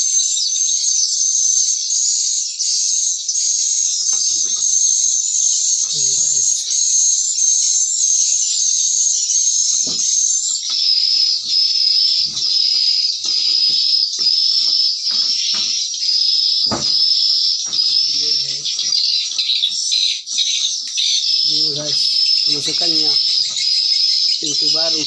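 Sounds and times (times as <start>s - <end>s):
recorded swiftlet chirping: 0.0s - 25.0s
loud thump: 16.7s - 17.1s
soft knocks: 16.7s - 18.0s.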